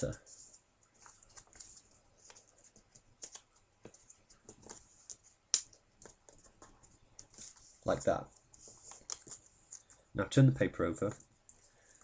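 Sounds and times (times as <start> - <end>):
paper crinkling: 0.4 - 5.3, 6.0 - 10.0.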